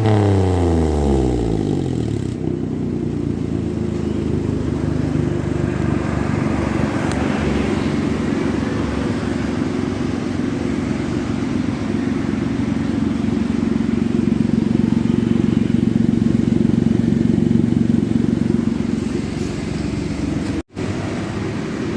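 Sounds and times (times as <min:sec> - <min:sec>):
car engine with deep exhaust note: 0:00.0 - 0:21.9.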